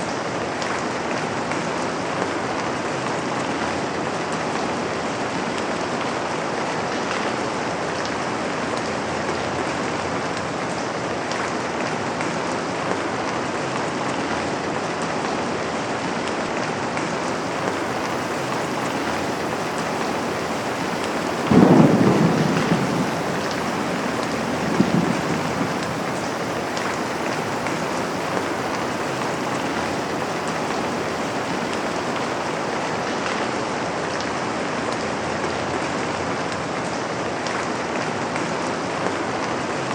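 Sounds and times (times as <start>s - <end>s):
rain on a window: 17.0s - 34.3s
thunder crack and rumble: 17.2s - 33.4s.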